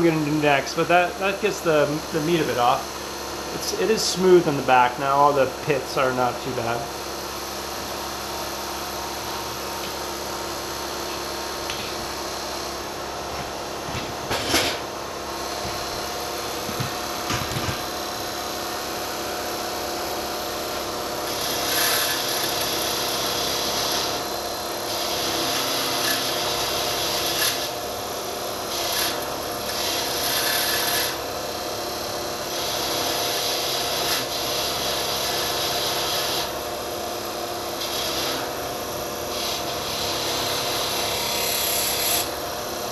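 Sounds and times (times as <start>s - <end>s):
blade scraping on grinding wheel: 0.0s - 6.8s, 20.7s - 27.8s, 28.7s - 31.3s, 32.5s - 36.5s, 37.7s - 42.7s
bench grinder motor running: 0.0s - 42.9s.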